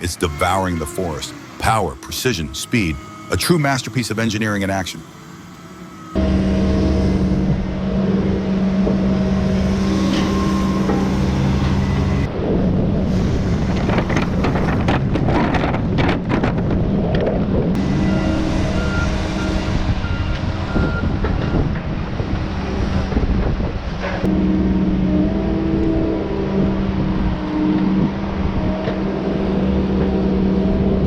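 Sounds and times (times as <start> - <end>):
reversing beeper: 0.0 - 7.6, 17.8 - 21.2
heavy machinery engine running: 0.0 - 31.0
rapid knocks and cracks: 13.7 - 17.5.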